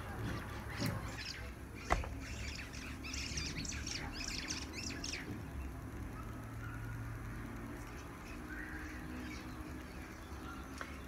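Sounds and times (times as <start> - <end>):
high bird chirps: 1.1 - 5.7.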